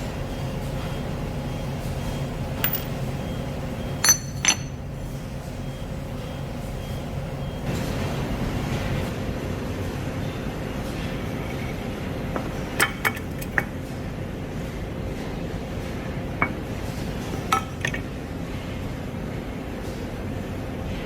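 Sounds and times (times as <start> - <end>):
light metallic clinks: 2.6 - 3.0, 4.0 - 4.8.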